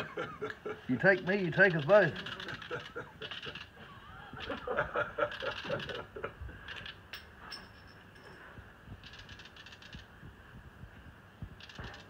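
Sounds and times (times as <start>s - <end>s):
high rattling bird chatter: 0.9s - 3.8s, 4.4s - 7.1s, 9.0s - 10.2s, 11.6s - 12.0s.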